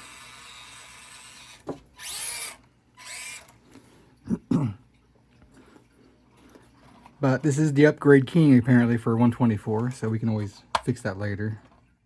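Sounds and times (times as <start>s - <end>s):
small electric motor whirring: 0.0s - 3.6s.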